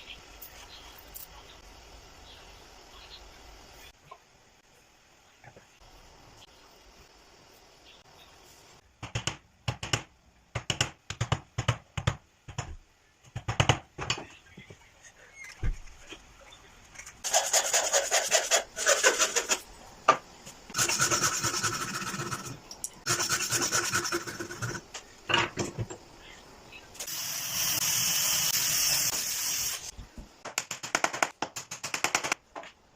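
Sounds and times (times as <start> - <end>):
gritty rasping on wood: 17.2 - 19.6
hand tool scraping wood: 17.2 - 19.6, 20.7 - 24.8.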